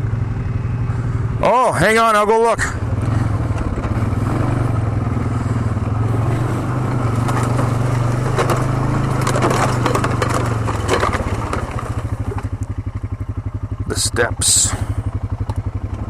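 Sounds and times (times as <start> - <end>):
quad engine running: 0.0 - 16.0
stones crunching under tyres: 3.0 - 13.0.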